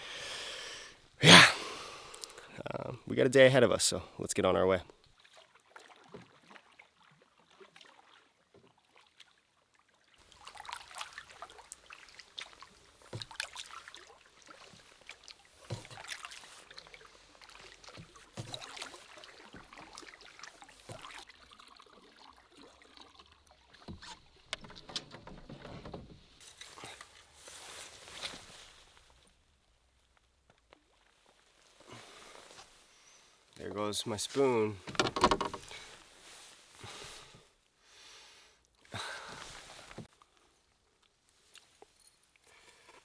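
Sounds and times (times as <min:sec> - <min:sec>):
water splashes and drips: 0:04.8 - 0:32.9, 0:38.6 - 0:43.0
canoe paddle strokes in water: 0:05.1 - 0:29.2, 0:34.3 - 0:37.5, 0:39.0 - 0:40.1.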